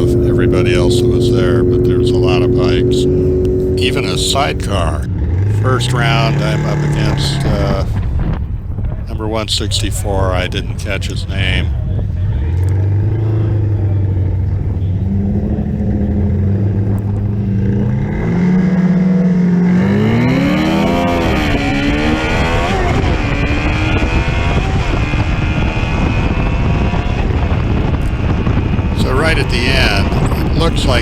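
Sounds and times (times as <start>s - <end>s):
motorcycle engine revving: 0.0s - 31.0s
wind noise: 0.0s - 31.0s.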